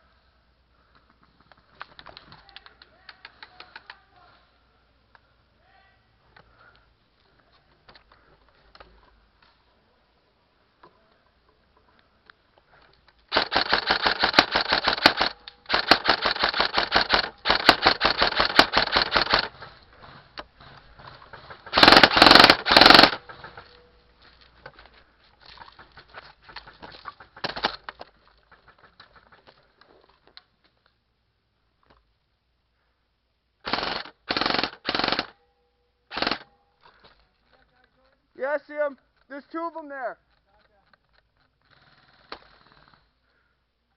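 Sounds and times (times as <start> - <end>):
airsoft gun firing bursts: 13.3 - 19.6, 21.4 - 23.6, 27.3 - 27.8, 33.6 - 35.4, 36.1 - 36.5.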